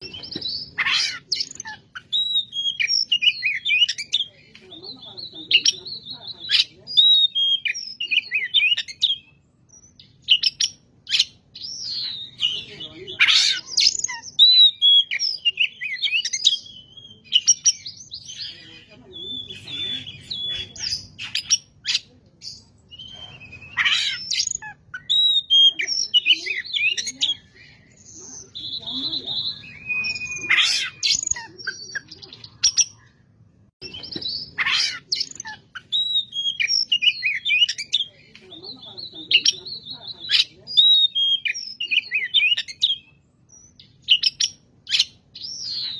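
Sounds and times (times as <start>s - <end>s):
harsh raspy bird call: 0.7s - 3.9s, 12.2s - 16.2s, 23.6s - 27.0s, 29.4s - 32.1s, 34.5s - 37.8s
bird singing whistled song: 1.4s - 4.3s, 5.0s - 13.0s, 13.8s - 33.1s, 35.2s - 45.9s.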